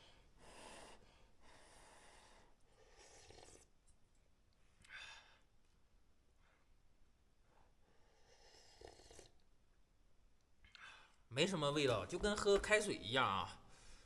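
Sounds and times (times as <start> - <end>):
person breathing softly: 0.0 - 3.7, 7.4 - 9.1, 13.6 - 14.0.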